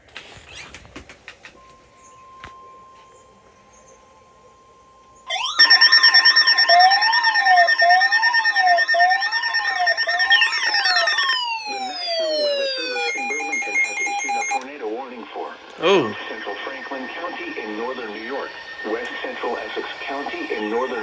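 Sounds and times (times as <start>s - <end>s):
faint steady alarm tone: 1.6s - 15.0s, 15.8s - 21.0s
wailing electronic siren: 5.2s - 14.7s, 15.8s - 21.0s.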